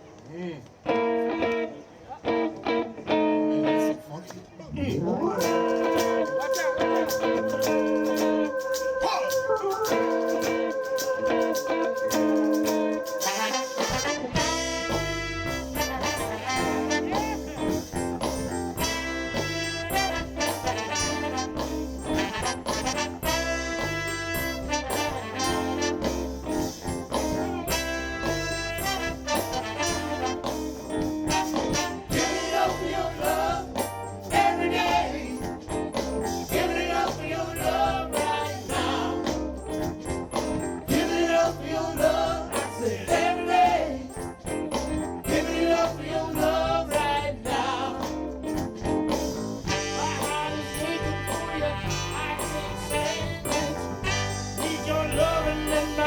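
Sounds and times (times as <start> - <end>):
horn section: 5.3 - 35.2, 49.6 - 56.0
bass line: 13.8 - 56.0.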